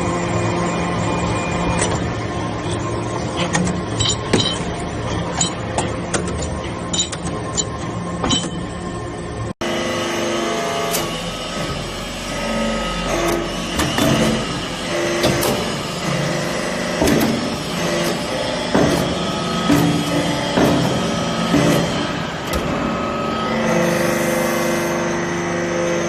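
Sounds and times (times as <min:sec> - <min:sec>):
industrial machinery running: 0:00.0 - 0:26.0
metallic clinks and knocks: 0:03.9 - 0:04.7.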